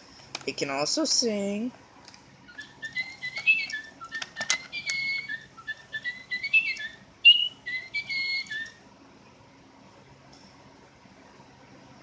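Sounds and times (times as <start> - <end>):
toy bird electronic chirps: 2.5 - 8.8.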